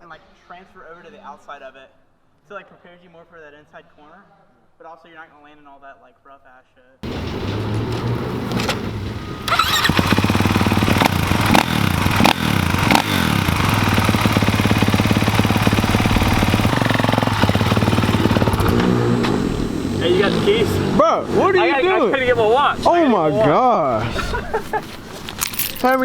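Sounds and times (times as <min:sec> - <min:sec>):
pit bike engine revving: 0:07.0 - 0:22.9.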